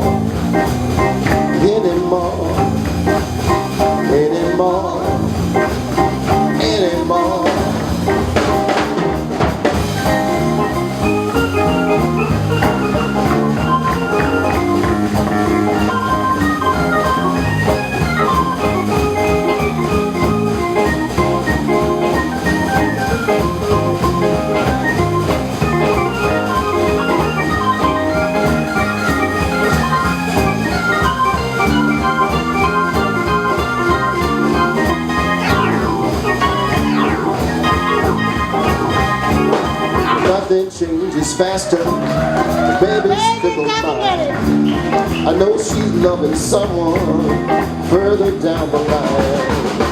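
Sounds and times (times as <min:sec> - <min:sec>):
bass: 0:00.0 - 0:49.9
drum kit: 0:00.0 - 0:49.9
lead solo of quick notes: 0:09.8 - 0:40.5.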